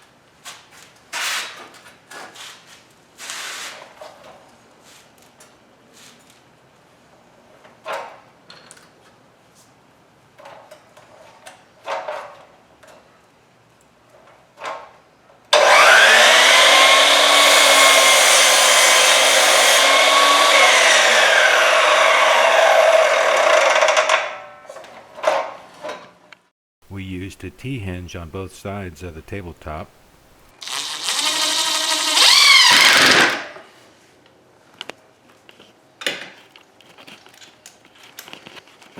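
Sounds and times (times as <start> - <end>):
electric power saw cutting wood: 15.6 - 23.9, 30.6 - 33.5.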